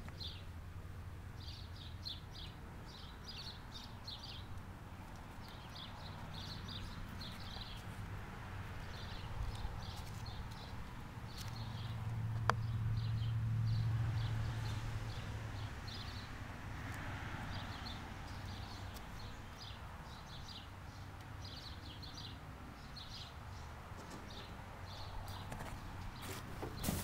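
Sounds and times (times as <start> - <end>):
small birds chirping: 0.0 - 0.5, 1.2 - 27.0.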